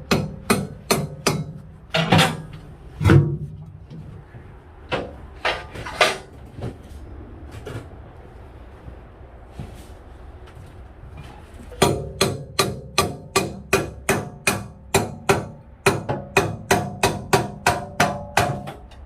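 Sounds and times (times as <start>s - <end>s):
hammer striking steel: 0.0s - 3.3s, 11.7s - 19.0s.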